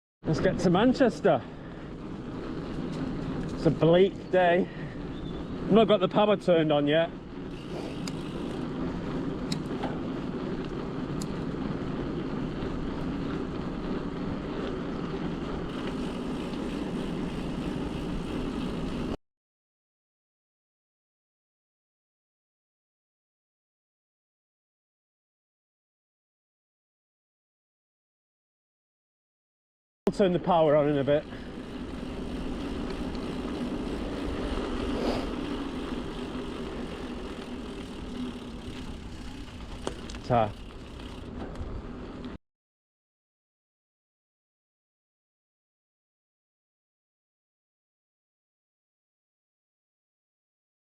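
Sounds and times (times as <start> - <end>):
wind and road noise from bicycle: 0.2 - 19.2, 30.1 - 42.4
tyre hum: 7.4 - 19.2, 31.1 - 42.3.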